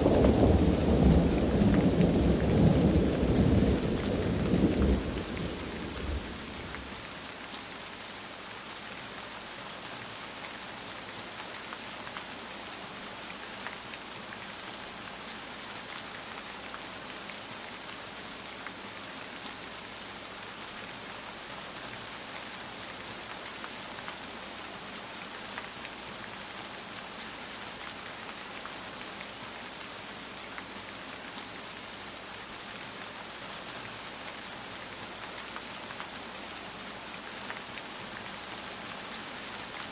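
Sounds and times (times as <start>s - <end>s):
thunder rumble: 0.0s - 6.9s
steady rain falling: 0.0s - 39.9s.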